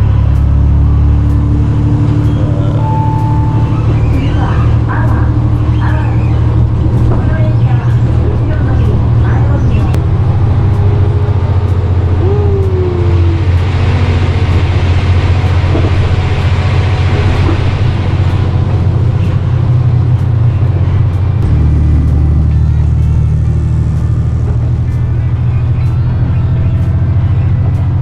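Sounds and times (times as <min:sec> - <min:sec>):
train droning and rumbling: 0:00.0 - 0:28.0.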